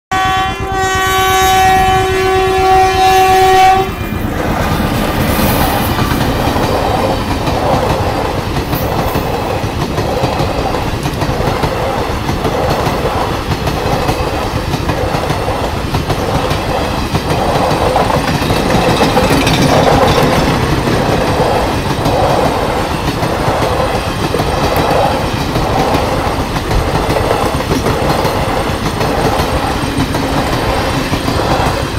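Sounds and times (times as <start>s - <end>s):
locomotive horn blast: 0.1s - 4.3s
train coaches rattling past: 0.2s - 31.9s
train wheels clicking over rail joints: 4.2s - 31.9s.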